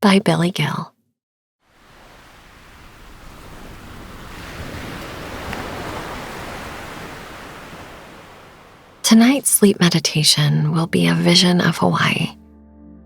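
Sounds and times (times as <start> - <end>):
ocean wave surf: 1.7 - 10.0.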